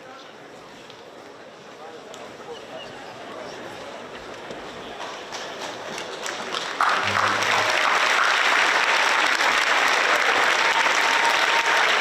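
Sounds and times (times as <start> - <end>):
crowd applauding: 5.0 - 12.0.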